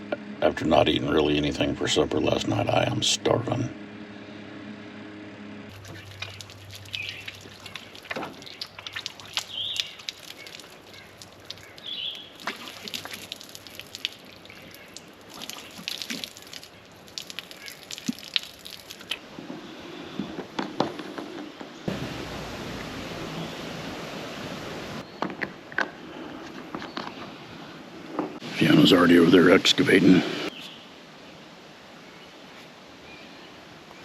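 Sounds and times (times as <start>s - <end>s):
water dripping and trickling: 5.7s - 19.3s.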